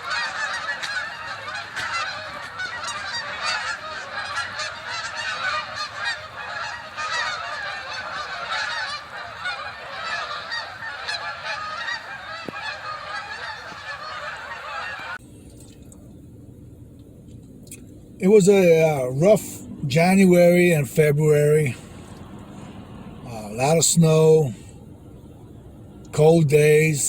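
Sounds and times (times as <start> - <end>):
flock of birds calling: 0.0 - 15.2, 18.2 - 24.9, 26.1 - 27.0.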